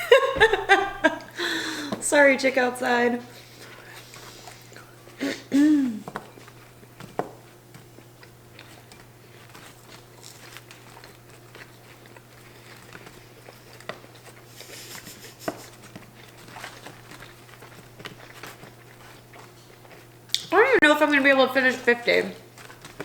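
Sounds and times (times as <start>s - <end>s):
faint steady hum: 0.0s - 23.0s
biting and chewing food: 3.3s - 5.2s, 6.0s - 23.0s.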